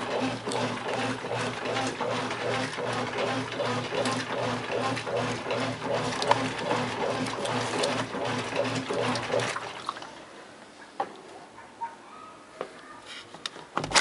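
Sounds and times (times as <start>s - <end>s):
washing machine motor humming: 0.0s - 10.2s
water sloshing: 3.4s - 10.4s.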